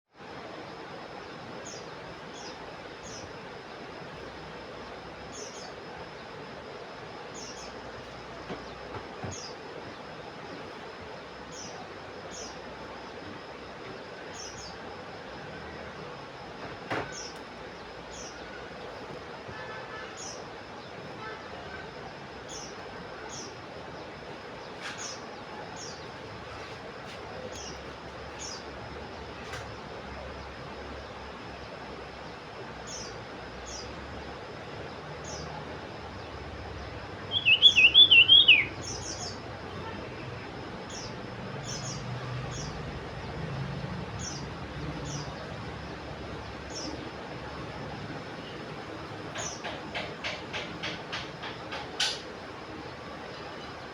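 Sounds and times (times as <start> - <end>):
bird chirping: 37.3 - 39.4.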